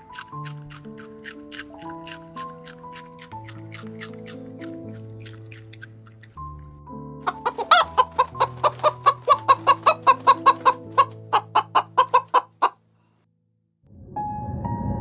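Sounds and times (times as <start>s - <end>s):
soft background music: 0.0s - 12.8s
chicken clucking: 7.2s - 12.8s.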